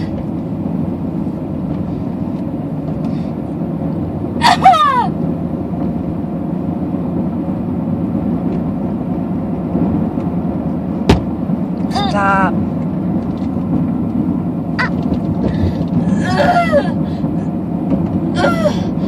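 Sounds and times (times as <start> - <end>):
car cabin road and engine noise: 0.0 - 19.0
person moaning in pain: 11.9 - 12.5.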